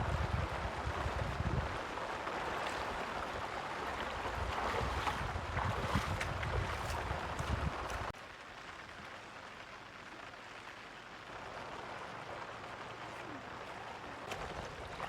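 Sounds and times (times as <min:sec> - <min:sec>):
wind buffeting microphone: 0:00.0 - 0:08.1
rushing water: 0:00.0 - 0:15.0.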